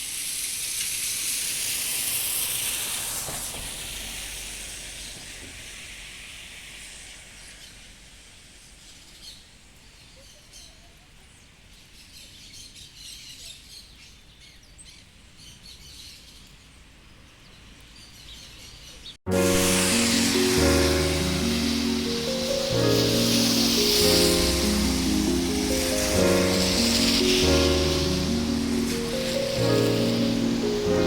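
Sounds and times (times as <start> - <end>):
rain hissing: 0.0 - 9.3, 19.3 - 31.0
music: 19.3 - 31.0.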